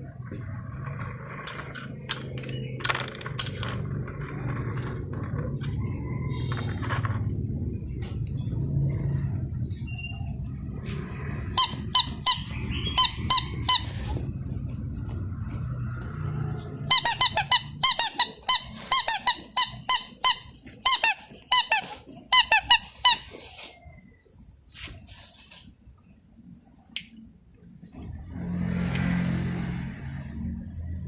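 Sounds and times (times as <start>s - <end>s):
low rumble: 3.8s - 16.7s
squeaky toy squeaking: 11.4s - 14.4s, 16.6s - 23.7s.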